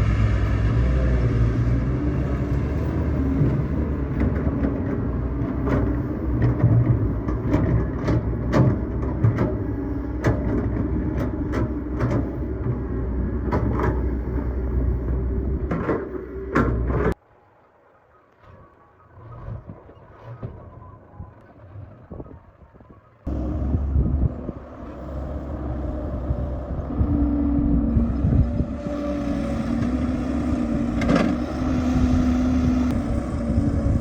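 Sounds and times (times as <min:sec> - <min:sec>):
excavator diesel engine running: 0:00.0 - 0:17.2, 0:23.3 - 0:34.0
sharp knocks and clanks: 0:03.4 - 0:17.2.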